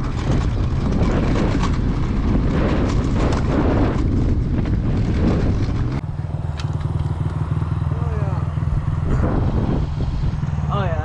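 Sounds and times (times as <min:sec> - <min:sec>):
evenly pulsing running sound: 0:00.0 - 0:11.0
wind buffeting microphone: 0:00.0 - 0:11.0.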